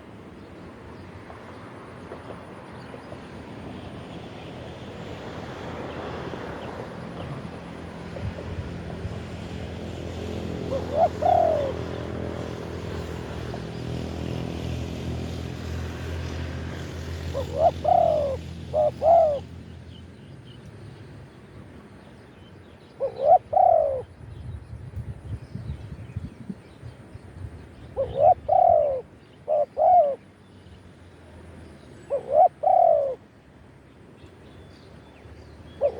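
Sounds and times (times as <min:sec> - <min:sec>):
low engine hum: 0:00.0 - 0:35.9
dove cooing: 0:10.4 - 0:12.4, 0:17.2 - 0:19.5, 0:23.0 - 0:24.1, 0:28.0 - 0:30.2, 0:32.1 - 0:33.2.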